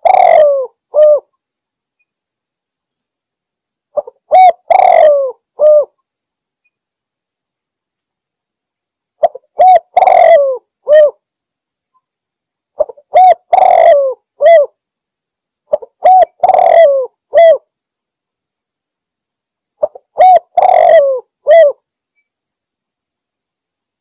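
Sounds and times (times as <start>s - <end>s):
dove cooing: 0.0s - 1.3s, 4.0s - 6.0s, 9.2s - 11.2s, 12.8s - 14.8s, 15.7s - 17.6s, 19.8s - 21.8s.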